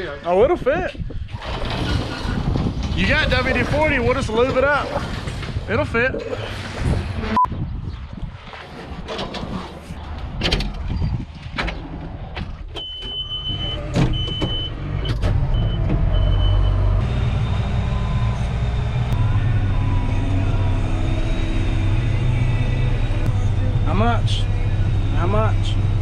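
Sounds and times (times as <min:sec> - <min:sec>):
combine harvester engine running: 0:14.8 - 0:23.9.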